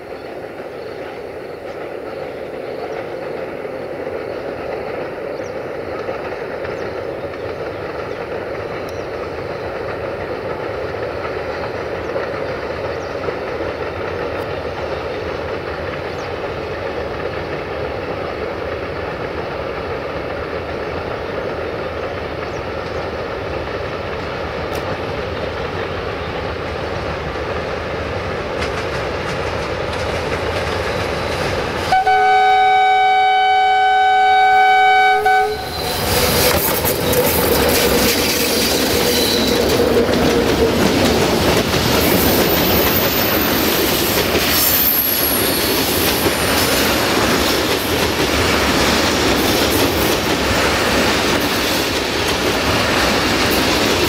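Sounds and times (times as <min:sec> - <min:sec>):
locomotive rumble: 0:00.0 - 0:54.0
wheels clattering over rail joints: 0:28.2 - 0:32.0, 0:35.7 - 0:54.0
locomotive horn chord: 0:31.9 - 0:35.9.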